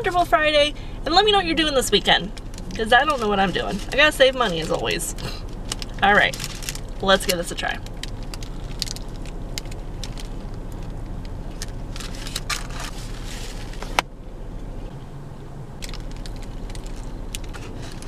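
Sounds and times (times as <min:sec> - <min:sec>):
steady low hum: 0:00.0 - 0:18.0
paper wrapper crinkling: 0:02.3 - 0:14.0, 0:15.8 - 0:18.0.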